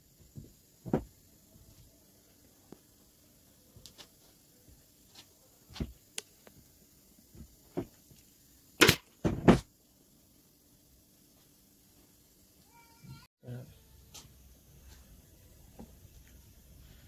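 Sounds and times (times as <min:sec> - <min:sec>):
loud thumps: 0:00.3 - 0:01.2, 0:08.8 - 0:09.7.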